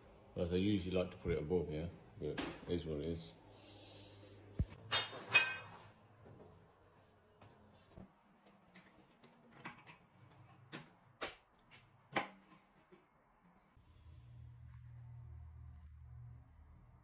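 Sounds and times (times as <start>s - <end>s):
low steady hum: 13.5s - 17.0s.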